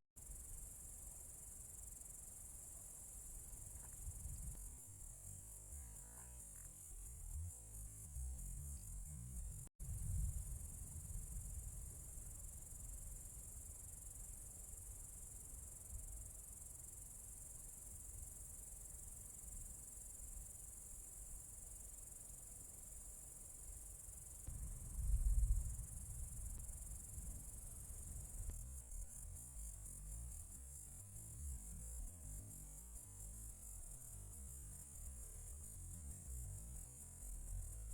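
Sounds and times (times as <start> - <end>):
crickets chirping: 0.2 - 37.9
low rumble: 24.5 - 28.6.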